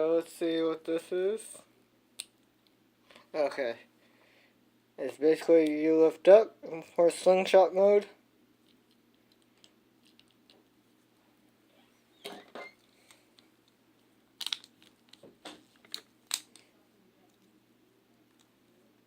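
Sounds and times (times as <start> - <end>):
plastic parts clicking: 14.4 - 16.7.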